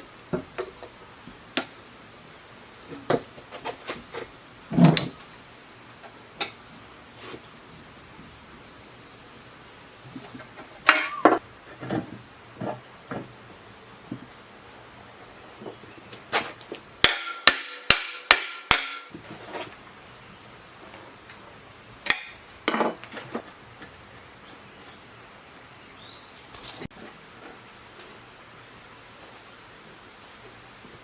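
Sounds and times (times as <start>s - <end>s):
insects chirring: 0.0s - 31.0s
sharp hammer strikes: 17.0s - 19.1s.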